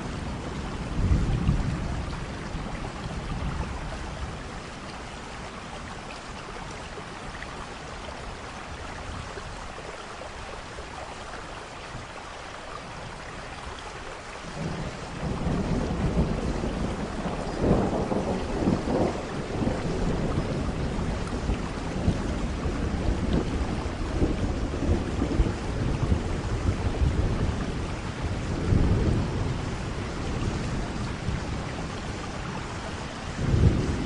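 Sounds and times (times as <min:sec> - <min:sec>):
rolling thunder: 0:00.0 - 0:04.5, 0:14.5 - 0:34.0
steady rain: 0:00.0 - 0:34.0.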